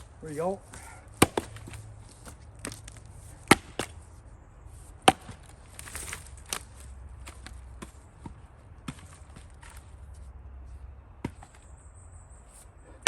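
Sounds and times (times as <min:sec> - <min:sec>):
axe chopping firewood: 0:00.0 - 0:04.1, 0:05.0 - 0:09.8, 0:11.2 - 0:11.6.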